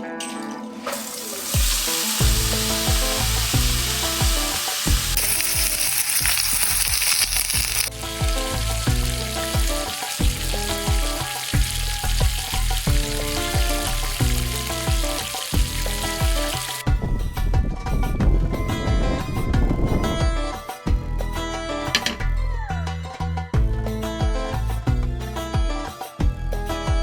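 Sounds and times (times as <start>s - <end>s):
steak sizzling on griddle: 0.9s - 16.8s.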